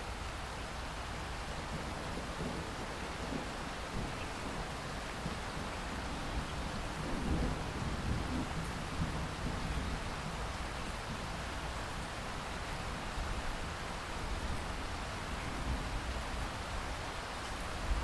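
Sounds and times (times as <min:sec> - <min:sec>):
steady rain: 0:00.0 - 0:18.0
distant thunder rumble: 0:06.2 - 0:10.2.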